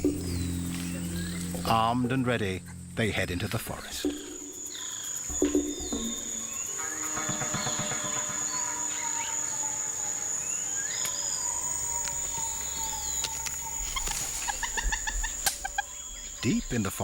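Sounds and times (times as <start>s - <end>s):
high-pitched insect drone: 0.0s - 17.0s
whistled bird calls: 3.8s - 16.9s.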